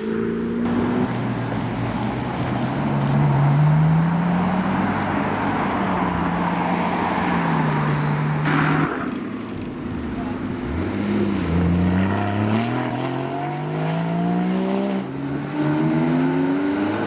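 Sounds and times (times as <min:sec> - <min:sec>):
road and tyre noise: 0:00.0 - 0:17.0.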